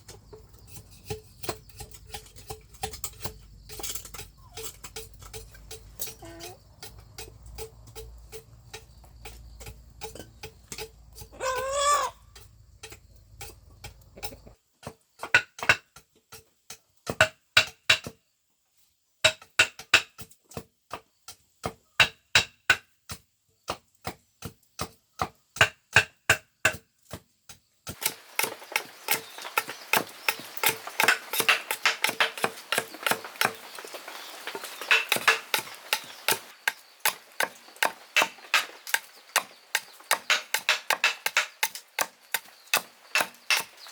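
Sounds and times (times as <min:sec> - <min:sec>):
tool striking bamboo: 0:00.1 - 0:18.2, 0:19.2 - 0:43.9
rooster crowing: 0:11.4 - 0:12.2.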